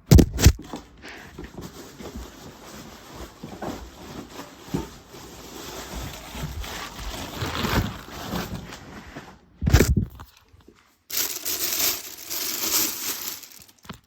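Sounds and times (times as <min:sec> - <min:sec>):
packaging rustling and tearing: 0:00.1 - 0:08.9, 0:11.1 - 0:14.0.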